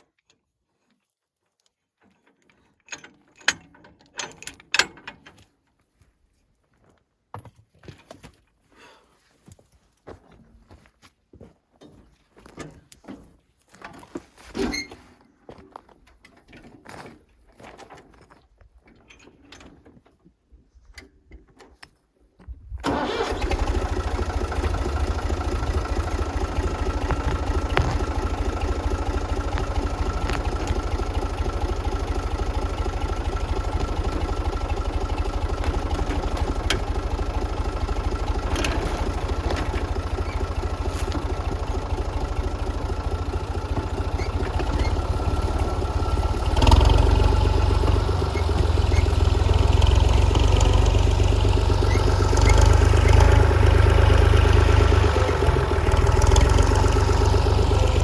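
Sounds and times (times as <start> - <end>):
small clicks and clanks: 1.5 - 5.6, 24.6 - 58.0
tractor engine idling and revving: 22.8 - 58.0.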